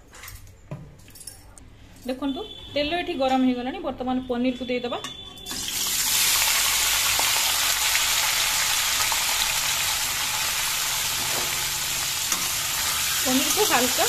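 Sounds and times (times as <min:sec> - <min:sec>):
cheese cubes sizzling in oil: 0:05.5 - 0:14.0.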